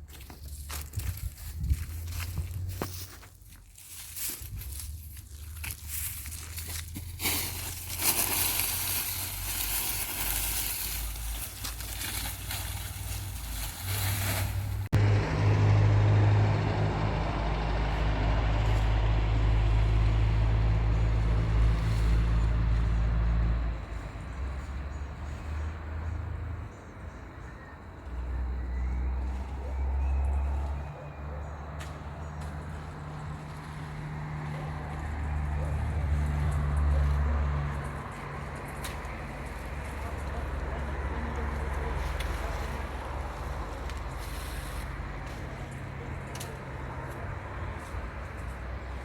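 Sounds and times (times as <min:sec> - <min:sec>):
rustling wind-like noise: 0:00.4 - 0:14.9
vehicle engine running: 0:05.4 - 0:27.2, 0:28.1 - 0:49.0.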